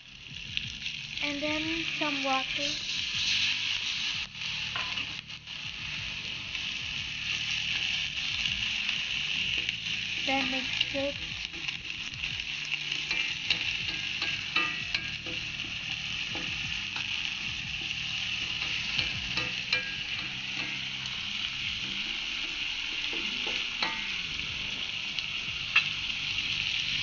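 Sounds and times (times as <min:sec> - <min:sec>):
leaves and onions sizzling in oil: 0:00.0 - 0:27.0
wooden spatula scraping and tapping pan: 0:10.4 - 0:21.2.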